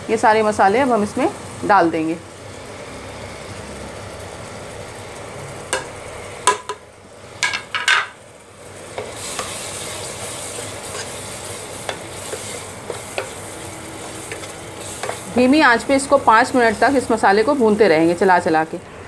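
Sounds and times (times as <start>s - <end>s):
paste frying in oil: 0.0s - 18.8s
wooden spatula scraping: 9.0s - 15.4s.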